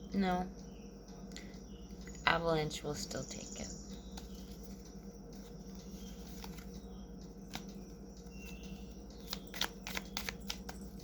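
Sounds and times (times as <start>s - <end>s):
steady low hum: 0.0s - 11.0s
cards clicking and rustling: 4.1s - 11.0s
card snap: 9.2s - 10.8s.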